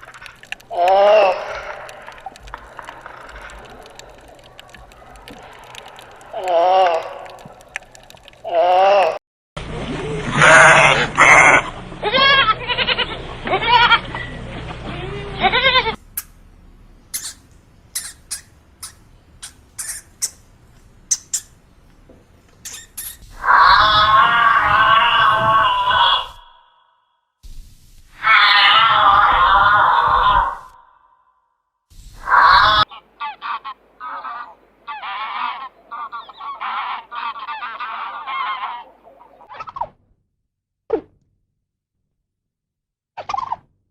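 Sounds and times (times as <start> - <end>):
sharp high-pitched ticks: 1.7 - 8.4, 17.1 - 20.4, 21.1 - 21.5
farm animal bleating: 10.4 - 14.1, 14.8 - 16.0
goose honking: 32.6 - 39.0.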